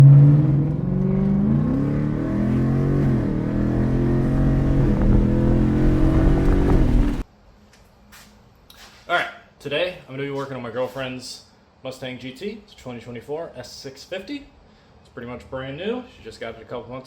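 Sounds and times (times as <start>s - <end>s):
car engine under throttle: 0.0s - 7.2s.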